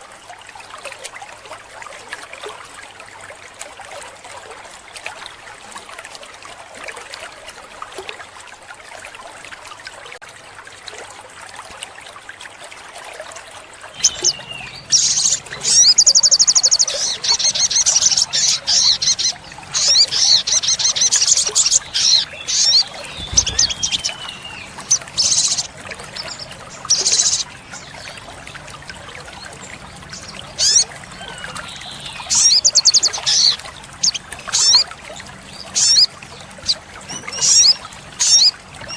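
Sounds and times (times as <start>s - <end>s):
sunbird trilling and chipping: 14.0s - 27.5s.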